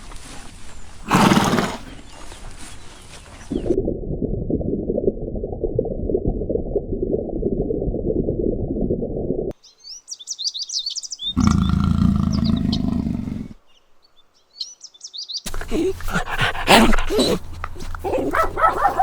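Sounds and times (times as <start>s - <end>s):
small birds chirping: 9.6s - 19.0s
dog barking: 16.0s - 19.0s.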